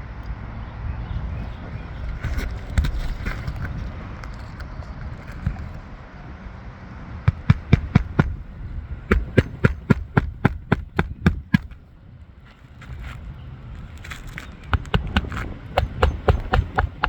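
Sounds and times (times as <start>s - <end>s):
wind rumble on microphone: 0.0s - 17.0s
hammer blows on a shingle roof: 7.3s - 11.9s, 14.2s - 17.0s.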